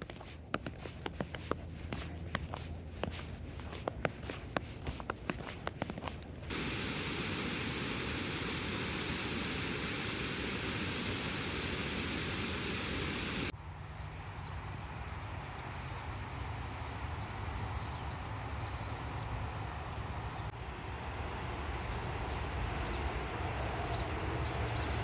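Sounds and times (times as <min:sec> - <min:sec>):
steady rushing noise: 0:06.1 - 0:13.5.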